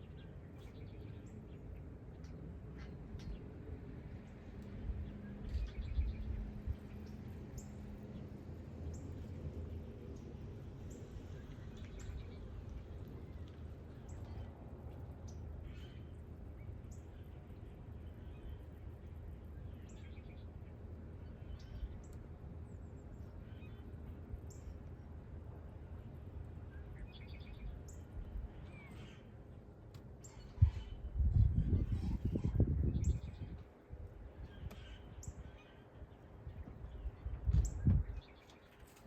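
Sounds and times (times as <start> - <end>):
small birds chirping: 4.7 - 24.8.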